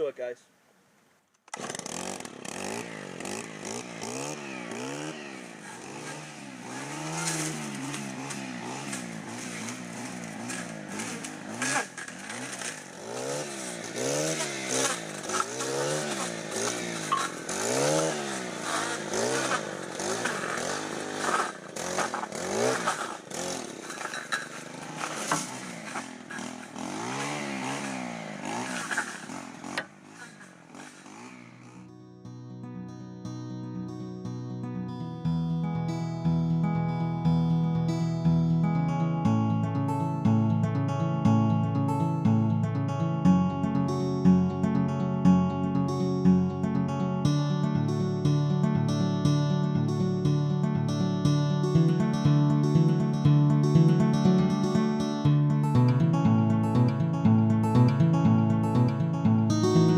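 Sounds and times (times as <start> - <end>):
brush cutter engine revving: 1.5 - 31.9, 58.7 - 59.9.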